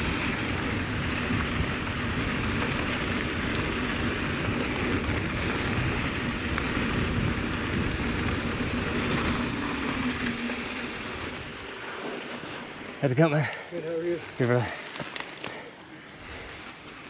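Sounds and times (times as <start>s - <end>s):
wind rushing over microphone: 0.0s - 11.7s
bike tires rolling on dirt: 0.0s - 17.0s
high fast ticking: 9.4s - 11.8s.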